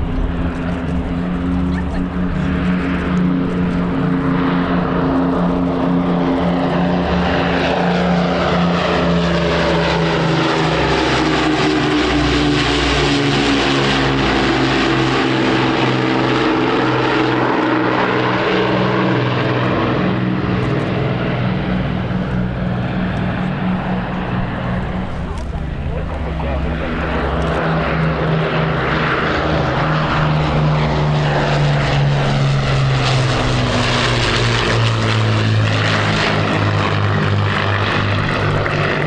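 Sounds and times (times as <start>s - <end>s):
propeller aircraft engines droning: 0.0s - 39.0s.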